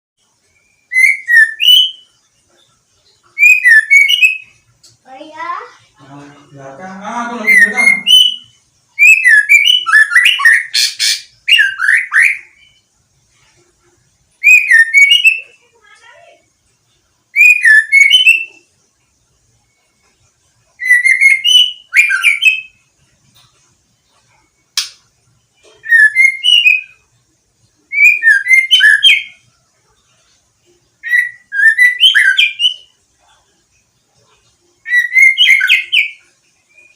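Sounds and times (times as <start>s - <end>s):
bird singing whistled phrases: 0.5s - 2.1s, 3.4s - 4.6s, 7.3s - 12.8s, 14.4s - 16.4s, 17.3s - 18.7s, 20.8s - 22.8s, 25.8s - 27.0s, 27.9s - 29.4s, 31.0s - 32.9s, 34.8s - 36.9s.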